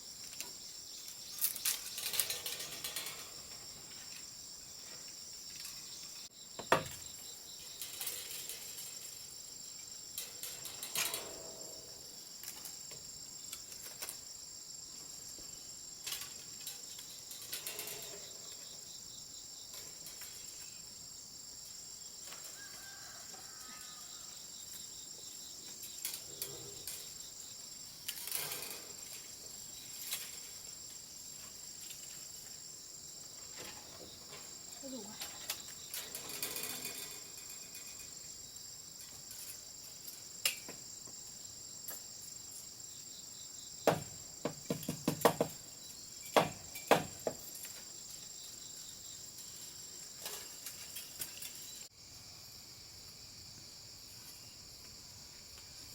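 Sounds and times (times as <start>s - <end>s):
insects chorus: 0.0s - 55.9s
handling knocks and rustles: 49.3s - 51.9s.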